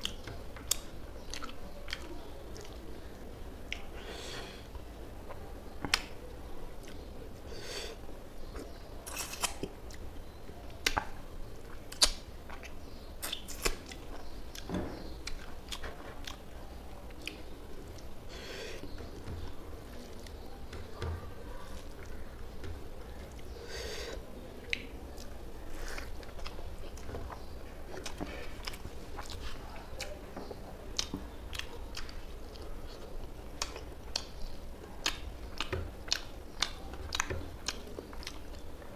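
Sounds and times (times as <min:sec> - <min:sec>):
man chewing wetly: 0:00.0 - 0:06.2, 0:10.7 - 0:20.4, 0:21.7 - 0:38.9
sharp mouth clicks: 0:11.7 - 0:15.4.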